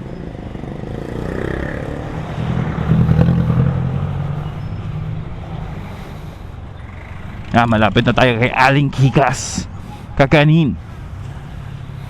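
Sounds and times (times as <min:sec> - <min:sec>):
scooter engine accelerating: 0:00.1 - 0:05.9, 0:06.7 - 0:08.4.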